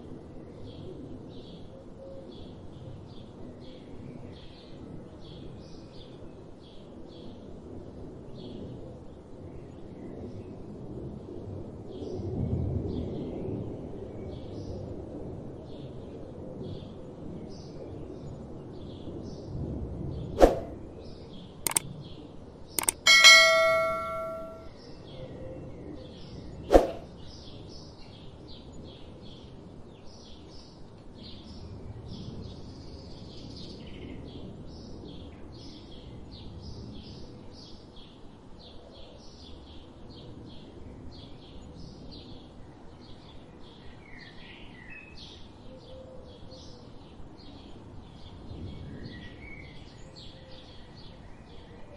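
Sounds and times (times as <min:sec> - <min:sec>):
loud metallic clang: 0:22.8 - 0:24.6.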